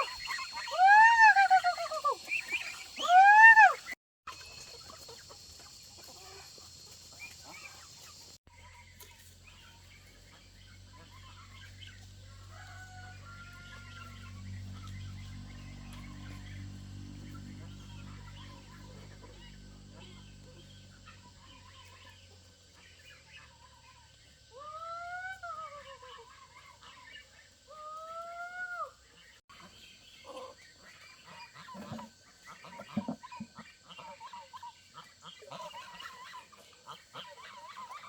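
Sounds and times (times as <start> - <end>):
faint chirps: 0.0 - 38.0
low steady hum: 8.5 - 37.9
rooster crowing: 12.2 - 14.6.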